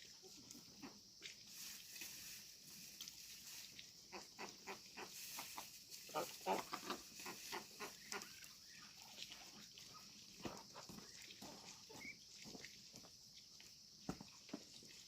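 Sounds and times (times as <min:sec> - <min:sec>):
pigs grunting: 0:06.1 - 0:08.3.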